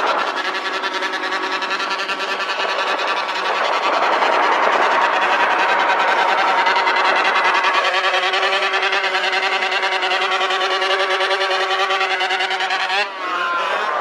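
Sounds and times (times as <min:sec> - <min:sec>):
motorcycle engine at high revs: 0:00.0 - 0:14.0.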